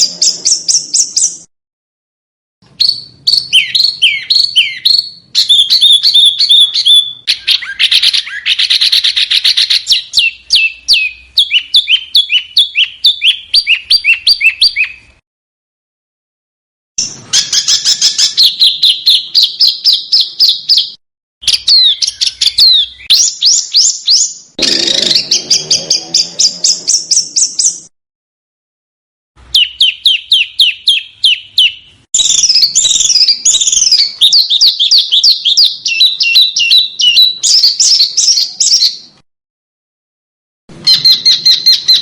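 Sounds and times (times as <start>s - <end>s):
small songbird singing high notes: 2.8s - 15.1s, 29.5s - 39.1s.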